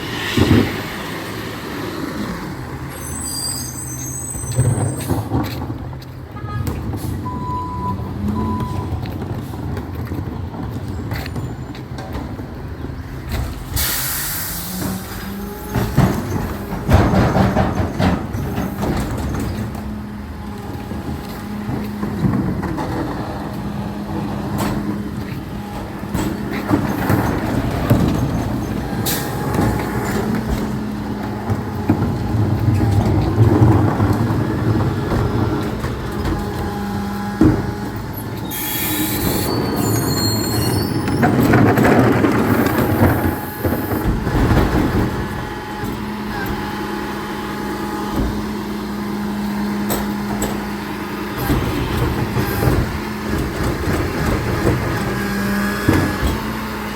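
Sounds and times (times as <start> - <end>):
high wavering squeals: 0.0 - 5.1, 38.1 - 41.3
truck engine and hydraulics hum: 0.0 - 56.9
clanks and knocks: 14.8 - 20.0.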